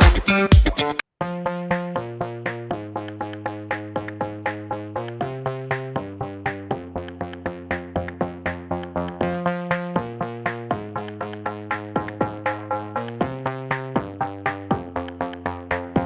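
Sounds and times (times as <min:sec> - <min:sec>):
drum machine beat: 0:00.0 - 0:01.0, 0:01.7 - 0:16.0
synthesizer chords: 0:00.0 - 0:16.0.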